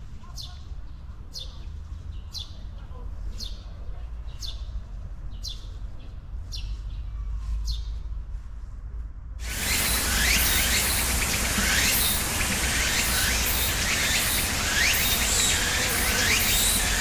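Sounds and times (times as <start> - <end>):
bird high falling chirp: 9.4 - 17.0
chorus of birds chirping: 9.4 - 17.0
steady hiss: 9.4 - 17.0.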